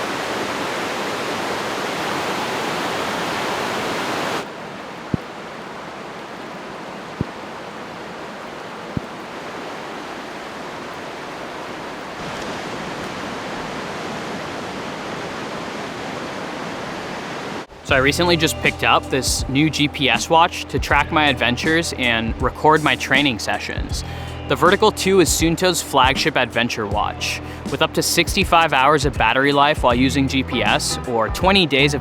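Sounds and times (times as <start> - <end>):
river water rushing: 0.0 - 18.4.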